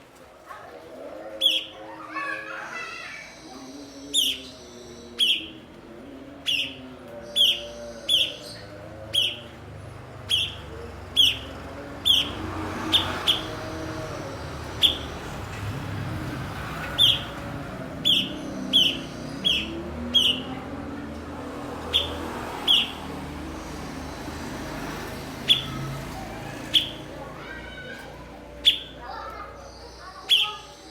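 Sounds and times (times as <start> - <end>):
bird chirping: 6.4 - 21.0, 21.7 - 27.9, 28.5 - 30.9.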